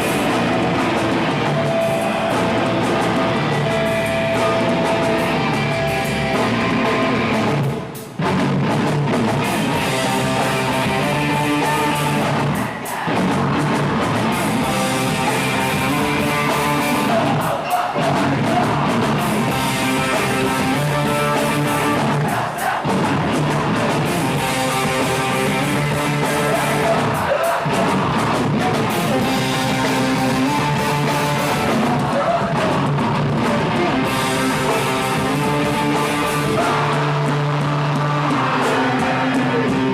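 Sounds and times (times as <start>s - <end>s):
drums: 0.0s - 39.9s
electric guitars: 0.0s - 39.9s
person singing: 23.7s - 28.2s, 33.7s - 39.9s.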